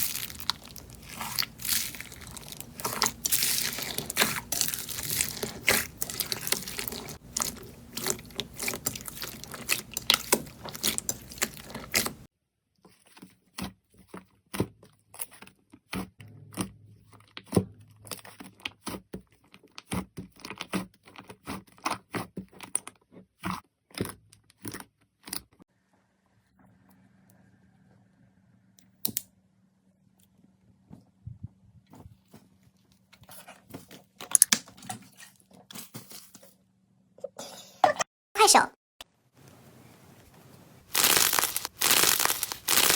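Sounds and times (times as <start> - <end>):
slime crunching and crackling: 0.0 - 12.3, 40.8 - 42.9.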